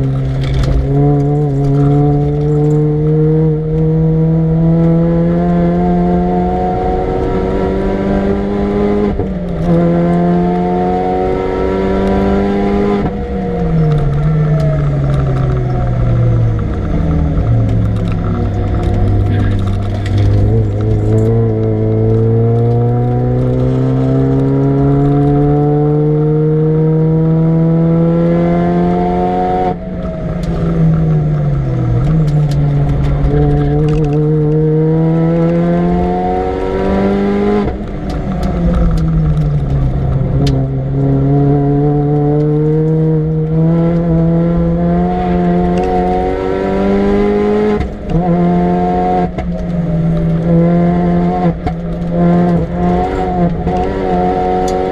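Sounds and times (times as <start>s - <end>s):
gear changes: 0.0s - 54.9s
supercharged car engine revving: 0.0s - 54.9s.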